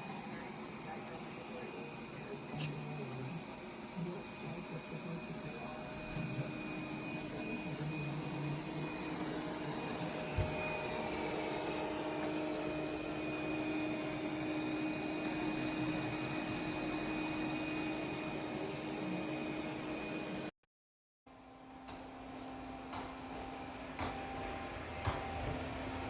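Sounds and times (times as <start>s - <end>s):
robot vacuum whirring: 0.0s - 20.5s.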